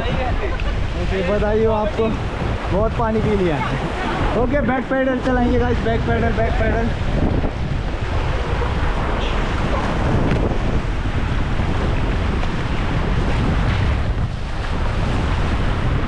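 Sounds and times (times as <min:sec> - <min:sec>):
rushing river rapids: 0:00.0 - 0:12.3
wind buffeting microphone: 0:00.0 - 0:16.0.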